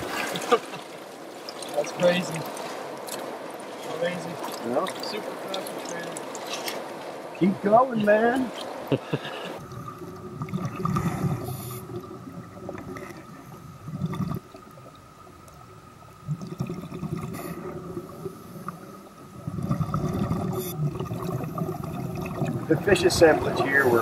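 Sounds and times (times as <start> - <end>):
river water at waterfall: 0.0 - 9.6.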